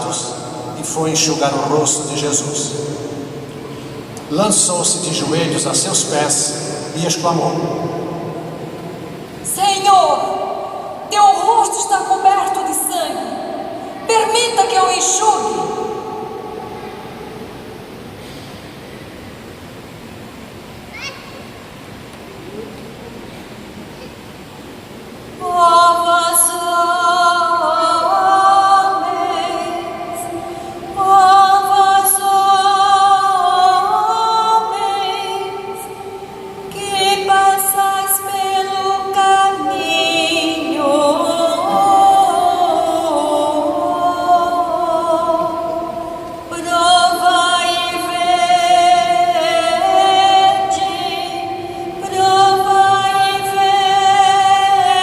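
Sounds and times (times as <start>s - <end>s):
woman singing slow song: 7.8s - 17.4s, 25.3s - 55.0s.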